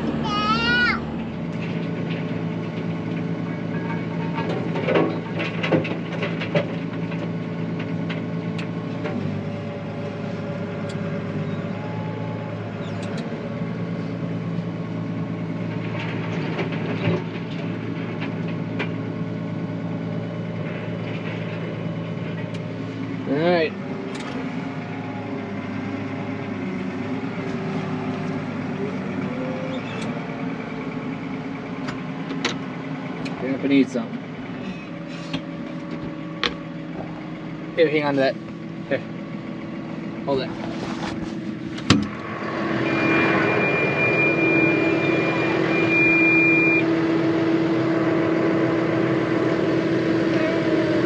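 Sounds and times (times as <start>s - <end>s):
engine low even hum: 0.0s - 51.0s
high-pitched tone: 42.2s - 47.8s.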